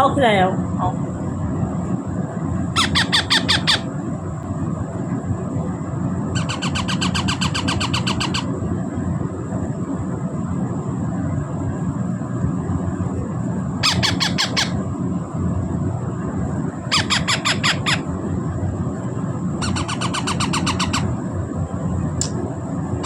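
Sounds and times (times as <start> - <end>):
low background rumble: 0.0 - 23.0
baby parrots squawking: 2.8 - 3.9, 6.4 - 8.5, 13.8 - 14.8, 16.9 - 18.1, 19.6 - 21.2.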